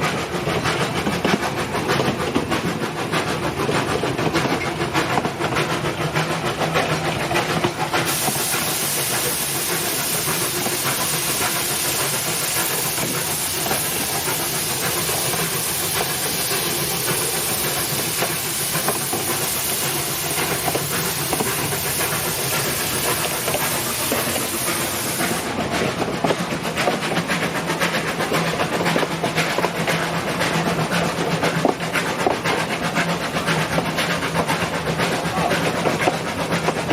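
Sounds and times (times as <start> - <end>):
steam locomotive: 0.0 - 36.9
loud steam hiss: 4.2 - 25.7.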